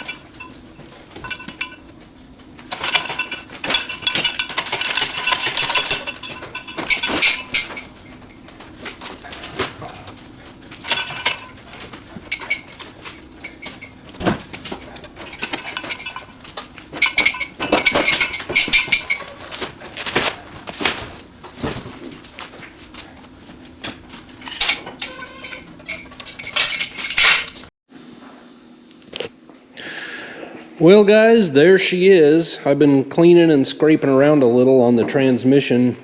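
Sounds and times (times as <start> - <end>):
metal tools clinking and scraping: 0.0 - 27.7.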